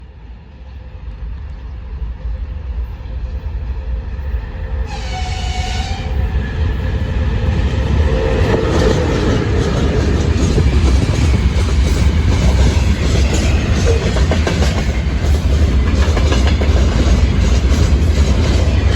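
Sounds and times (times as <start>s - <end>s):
locomotive horn: 4.9s - 6.3s.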